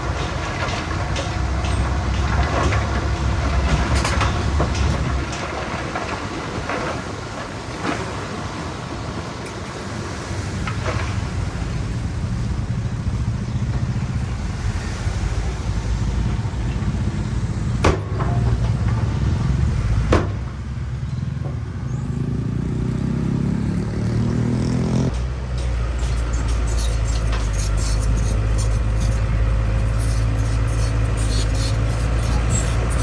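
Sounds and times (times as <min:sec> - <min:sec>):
heavy diesel engine under load: 0:00.0 - 0:33.0
sharp knocks: 0:17.8 - 0:19.2, 0:20.0 - 0:20.6.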